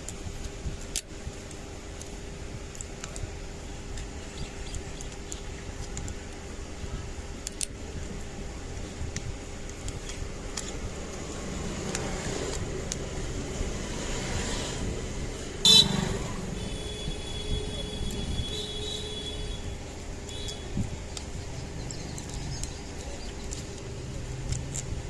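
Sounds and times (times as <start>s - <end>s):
short loud horn toot: 15.6s - 19.6s.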